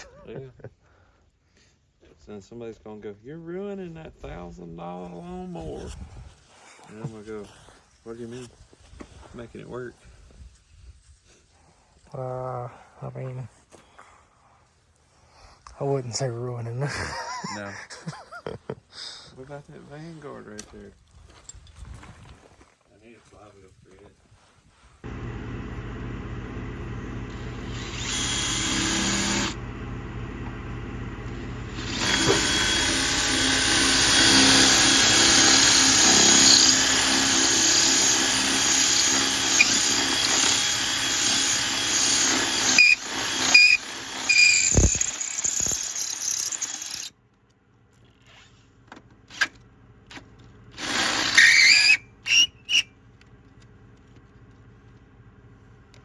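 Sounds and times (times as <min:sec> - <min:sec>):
handheld power tool running: 0:25.1 - 0:47.1, 0:50.8 - 0:52.0.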